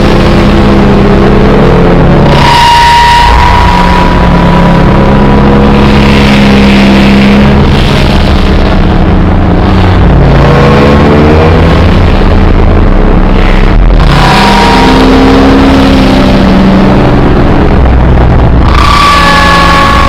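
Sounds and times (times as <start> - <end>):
thin high tone: 0.0 - 10.8, 13.3 - 20.0
droning low tones: 0.0 - 20.0
harsh distorted noise: 0.0 - 20.0.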